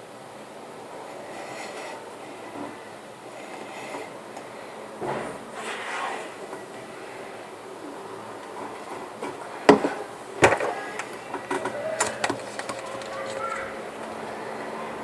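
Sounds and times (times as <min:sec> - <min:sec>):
objects being handled clicks: 0:10.4 - 0:14.4.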